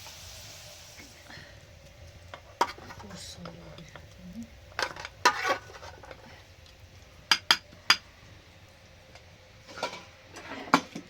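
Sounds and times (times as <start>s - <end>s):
metal kitchenware clinking: 4.8s - 6.2s, 9.7s - 11.0s.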